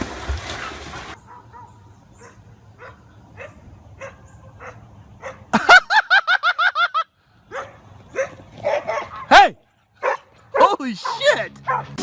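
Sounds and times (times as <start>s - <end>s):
dog yapping: 7.5s - 9.4s, 10.0s - 12.0s.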